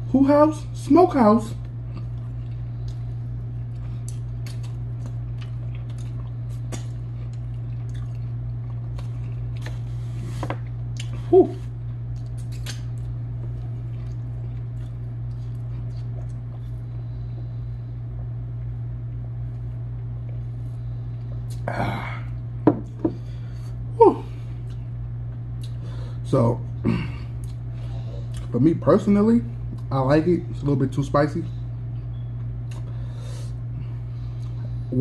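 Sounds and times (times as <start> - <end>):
steady low hum: 0.0 - 35.0
chewing with wet mouth clicks: 1.6 - 9.8, 10.6 - 11.2, 11.8 - 17.4, 21.2 - 21.6, 24.6 - 25.8, 27.4 - 27.7, 28.3 - 28.6, 29.6 - 29.9, 32.0 - 33.0
person humming mm: 11.2 - 11.7, 21.5 - 22.4, 24.0 - 24.5.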